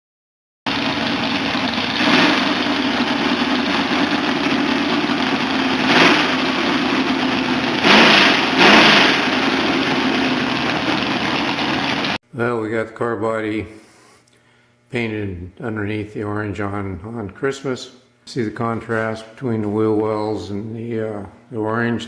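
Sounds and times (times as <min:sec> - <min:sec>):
car engine idling and revving: 0:00.7 - 0:12.2.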